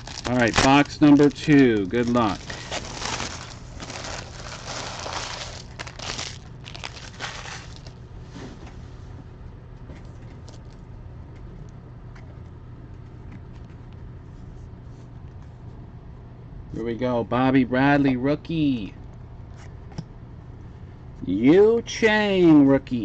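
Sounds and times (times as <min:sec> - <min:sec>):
foil wrappers tearing and crinkling: 0:00.0 - 0:08.0
low hum: 0:00.0 - 0:17.4.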